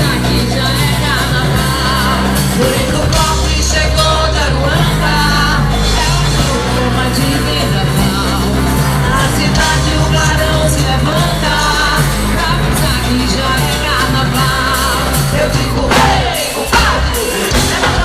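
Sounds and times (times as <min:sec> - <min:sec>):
band playing: 0:00.0 - 0:18.0
woman singing: 0:00.0 - 0:18.0.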